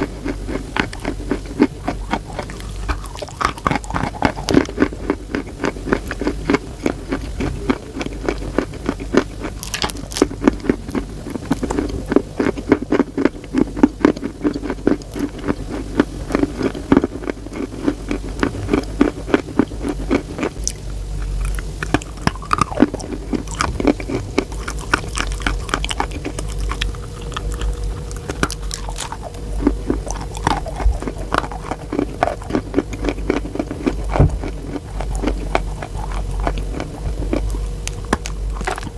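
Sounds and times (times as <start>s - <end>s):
crisp crunching while chewing: 0.0s - 38.9s
steady low hum: 0.0s - 38.9s.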